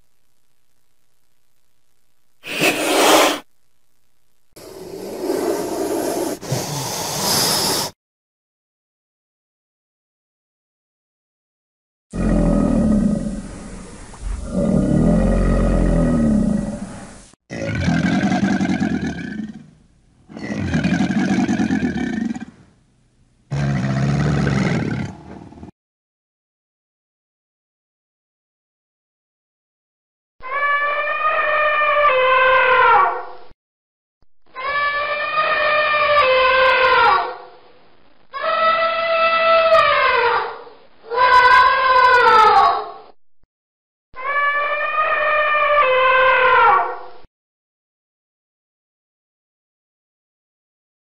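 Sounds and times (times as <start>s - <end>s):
snake hissing: 2.4s - 3.5s, 4.6s - 8.0s
alligator deep growling calls: 12.2s - 19.7s.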